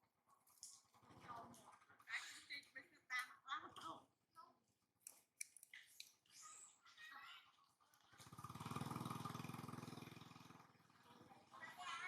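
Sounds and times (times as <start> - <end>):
small motorcycle engine passing: 8.2 - 11.6.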